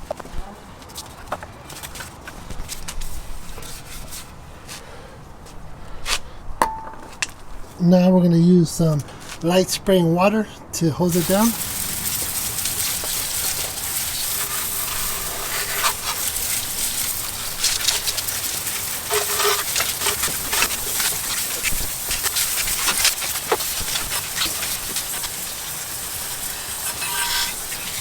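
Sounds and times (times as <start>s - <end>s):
garden hose spraying water: 10.8s - 28.0s
water splattering on engine: 11.1s - 28.0s.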